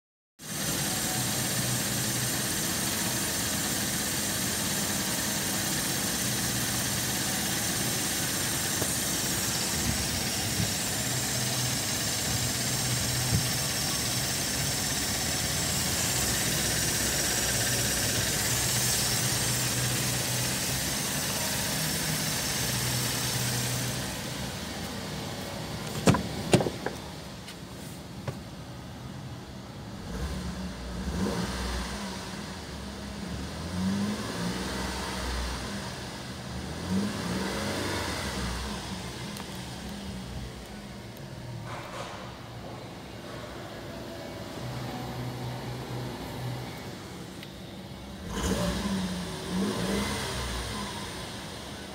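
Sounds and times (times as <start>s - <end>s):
car engine running: 0.5s - 28.8s.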